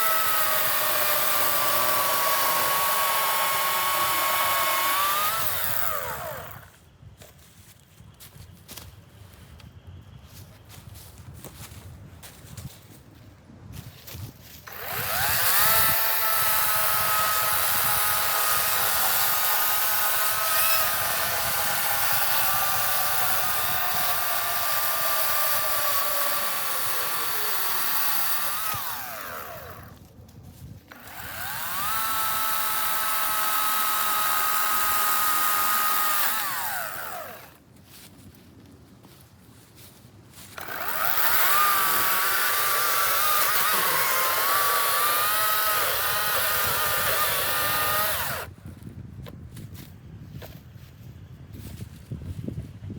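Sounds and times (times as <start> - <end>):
electric chainsaw motor whine: 0.0 - 6.8, 14.6 - 30.0, 30.9 - 37.6, 40.5 - 48.5.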